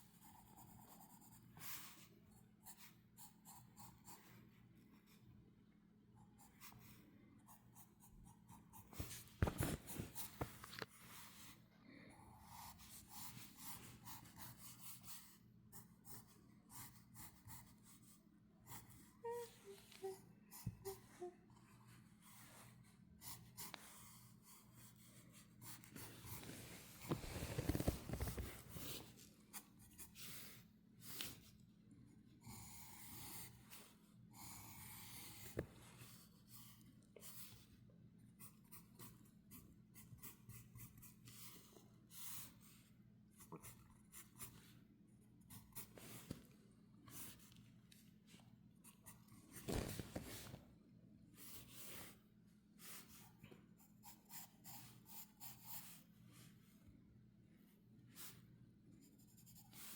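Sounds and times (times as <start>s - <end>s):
paper rustling: 9.0s - 10.9s, 49.5s - 50.6s.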